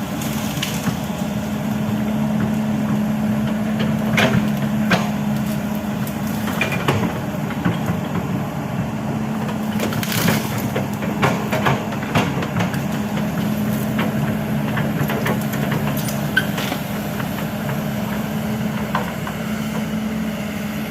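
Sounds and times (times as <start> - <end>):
excavator diesel engine running: 0.0 - 20.9
sharp cracks and knocks: 0.2 - 1.2, 3.8 - 8.3, 9.4 - 19.4.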